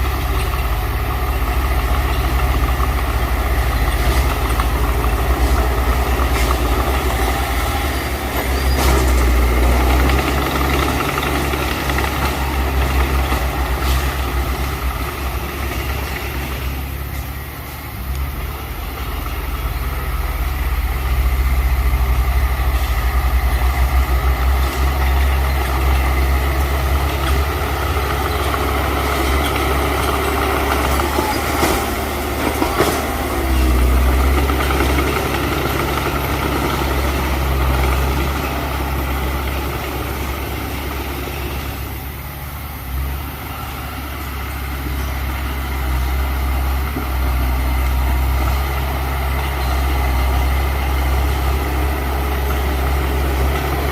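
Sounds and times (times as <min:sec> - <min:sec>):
diesel engine droning: 0:00.0 - 0:53.9.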